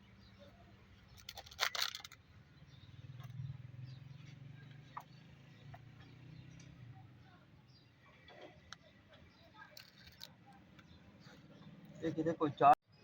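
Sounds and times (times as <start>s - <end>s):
sharp clicks and clatter: 1.1s - 2.2s.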